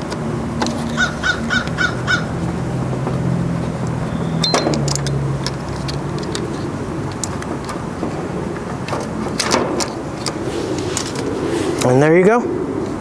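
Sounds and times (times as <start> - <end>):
bird cawing: 0.8 - 2.9.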